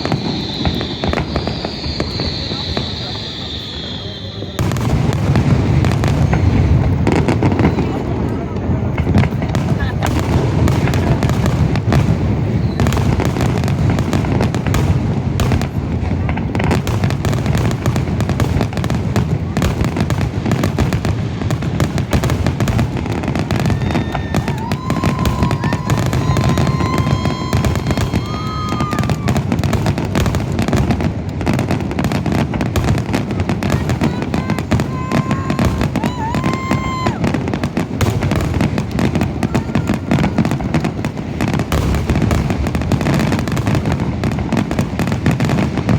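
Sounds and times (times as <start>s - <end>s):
whistle-like tone: 0.0s - 4.7s
fireworks bursts and crackle: 0.0s - 45.9s.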